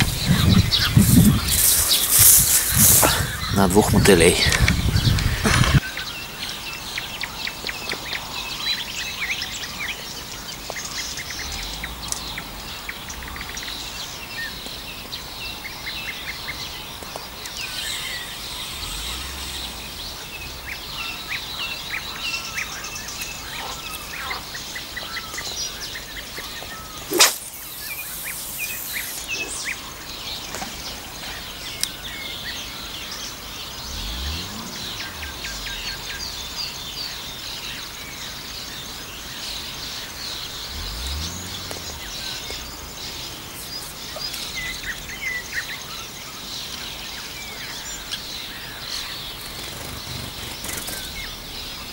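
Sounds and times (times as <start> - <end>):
songbirds chirping: 0.0 - 51.9
loud short swish: 27.1 - 27.5.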